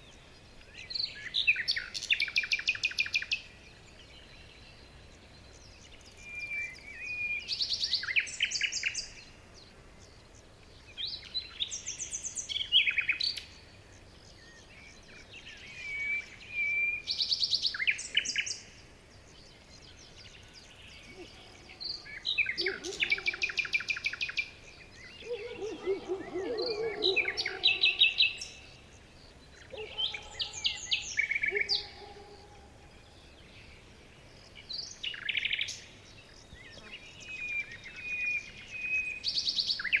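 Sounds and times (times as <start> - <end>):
background hiss: 0.0 - 40.0
low warbling birdsong: 0.0 - 40.0
birds trilling and whistling: 20.8 - 33.4.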